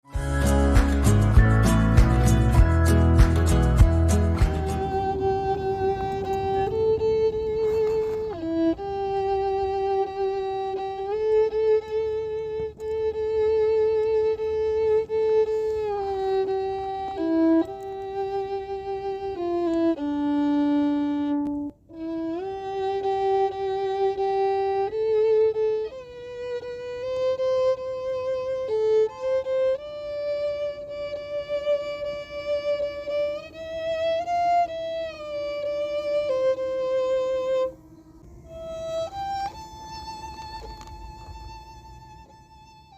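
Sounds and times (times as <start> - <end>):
solo violin melody: 0.0 - 42.9.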